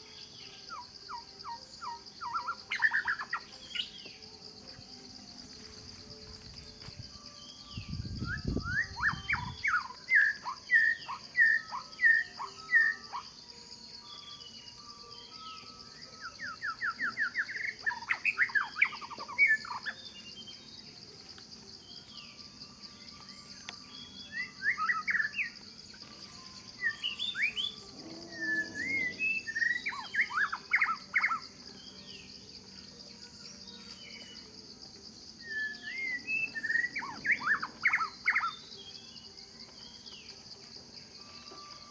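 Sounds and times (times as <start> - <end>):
high-pitched insect drone: 0.0 - 41.9
birds chirping: 22.0 - 32.4, 35.3 - 40.5.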